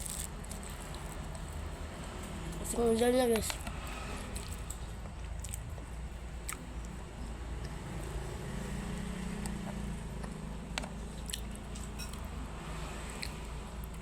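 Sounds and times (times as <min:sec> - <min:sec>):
person chewing: 0:04.3 - 0:08.2, 0:11.1 - 0:12.3.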